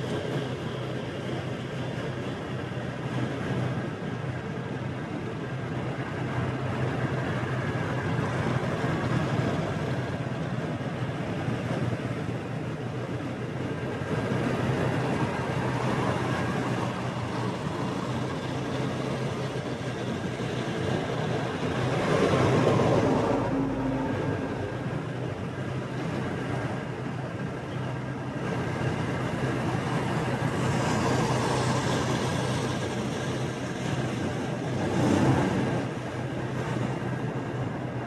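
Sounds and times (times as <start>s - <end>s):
light city traffic: 0.0s - 38.0s
road and wind noise: 0.0s - 38.0s
vehicle passing close by: 14.2s - 26.7s, 28.6s - 37.3s.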